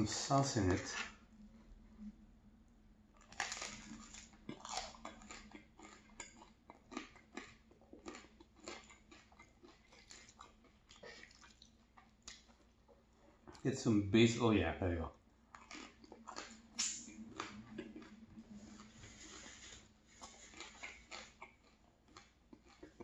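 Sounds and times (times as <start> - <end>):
chewing and biting food: 3.2 - 13.6, 15.1 - 23.0.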